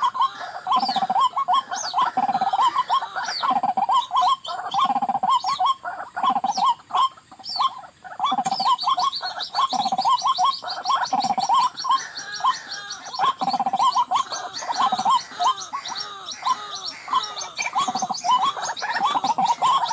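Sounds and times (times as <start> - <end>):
waterhen croaking calls: 0.0 - 19.9.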